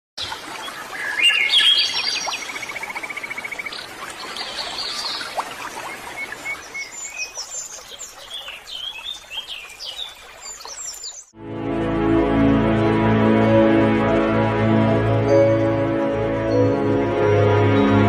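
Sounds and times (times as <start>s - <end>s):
songbirds chirping and whistling: 1.0s - 11.3s.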